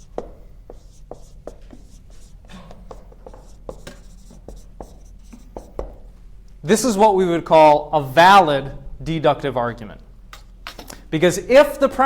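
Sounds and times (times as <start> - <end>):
faint scratching strokes: 0.0 - 5.8
writing tool tapping on board: 0.0 - 6.0
low steady hum: 0.0 - 12.0.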